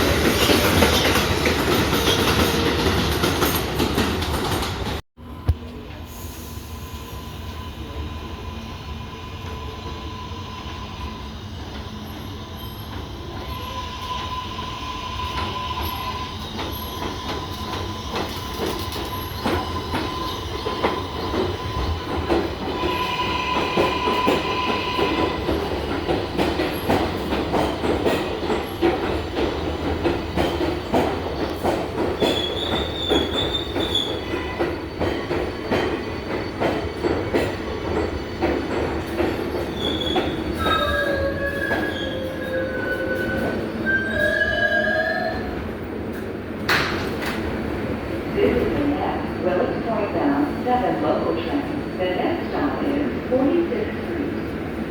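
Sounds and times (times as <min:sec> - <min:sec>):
subway train running on tracks: 0:00.0 - 0:54.9
high wheel squeals: 0:39.5 - 0:45.6.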